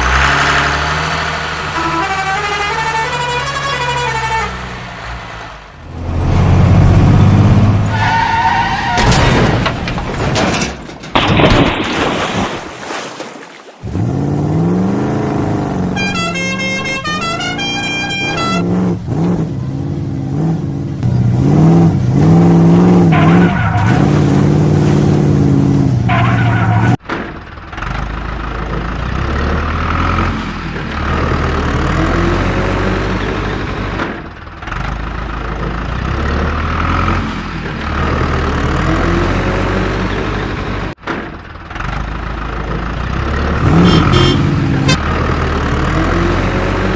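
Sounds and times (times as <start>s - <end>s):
horn-like pitched tones: 1.7s - 4.7s, 15.9s - 18.9s, 43.7s - 44.6s.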